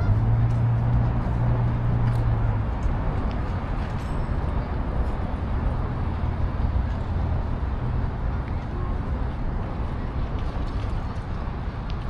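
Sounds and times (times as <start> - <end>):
passing vehicle engine hum: 0.0 - 8.3
road traffic rumble: 0.0 - 12.0.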